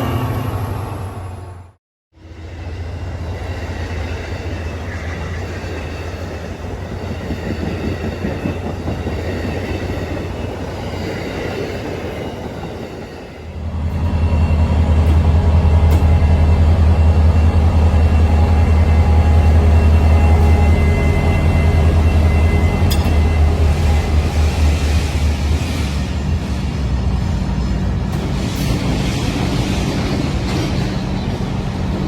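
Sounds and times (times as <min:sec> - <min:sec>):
train rumbling along rails: 0:00.0 - 0:32.0.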